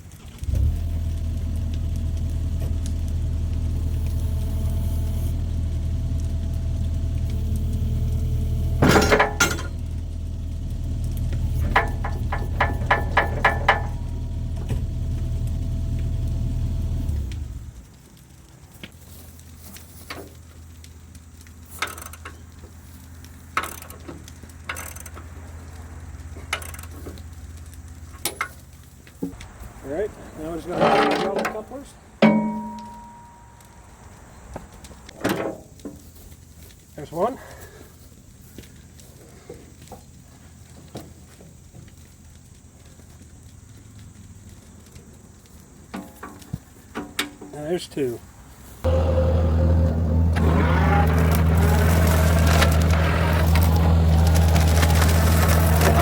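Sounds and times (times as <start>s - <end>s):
diesel engine idling: 0.2s - 17.9s, 47.6s - 56.0s.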